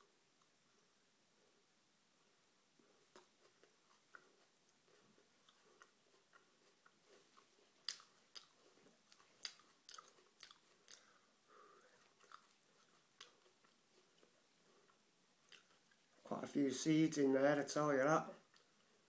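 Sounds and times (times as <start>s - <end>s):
person chewing with crunches: 2.8s - 16.3s, 18.4s - 19.0s.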